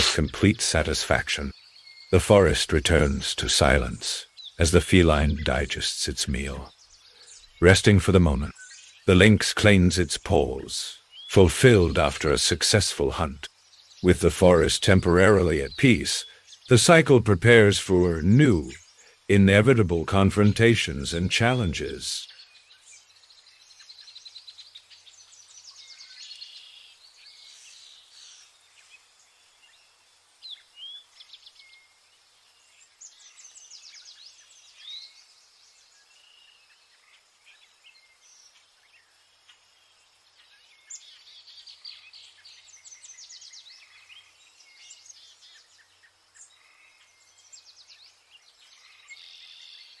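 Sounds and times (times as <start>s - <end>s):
birds singing and calling: 0.0s - 50.0s.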